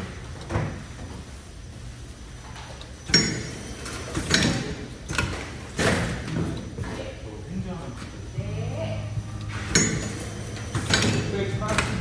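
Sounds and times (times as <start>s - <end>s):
packaging machine humming: 0.0s - 6.8s, 8.2s - 12.0s
mechanical clunks: 9.2s - 12.0s.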